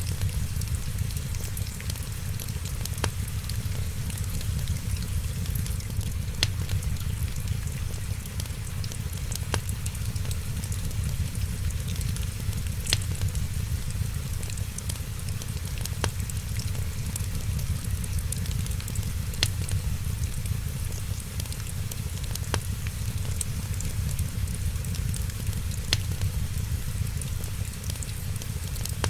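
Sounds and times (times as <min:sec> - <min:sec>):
wood fire crackling: 0:00.0 - 0:29.0
sharp pops: 0:25.8 - 0:26.3.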